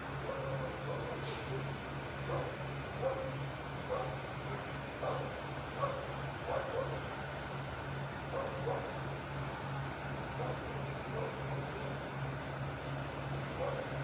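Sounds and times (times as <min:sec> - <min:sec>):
dog barking: 0:00.2 - 0:01.2, 0:02.3 - 0:04.2, 0:05.0 - 0:07.0, 0:08.3 - 0:09.0, 0:10.4 - 0:11.4, 0:13.6 - 0:13.9.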